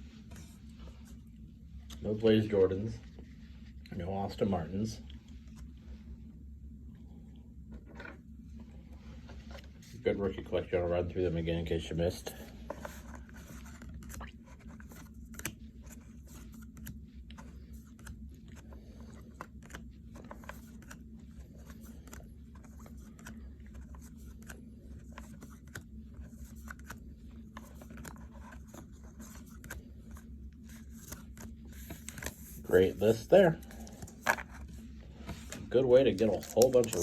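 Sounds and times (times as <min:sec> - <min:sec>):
steady low hum: 0:00.0 - 0:37.0
cards clicking and rustling: 0:12.2 - 0:37.0.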